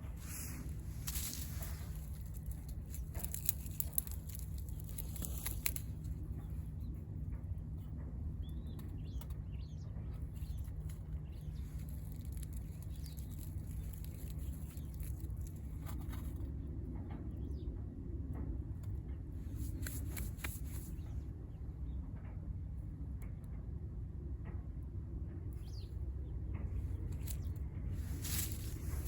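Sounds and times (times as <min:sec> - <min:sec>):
stove low rumble: 0:00.0 - 0:29.0
wood fire crackling and popping: 0:00.8 - 0:06.1.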